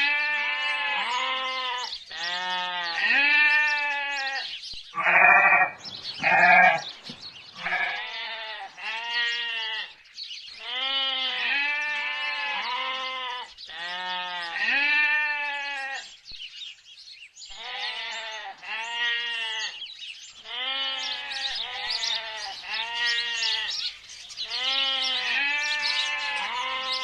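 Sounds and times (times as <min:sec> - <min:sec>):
sheep and goats bleating: 0:00.0 - 0:16.2, 0:17.5 - 0:27.0.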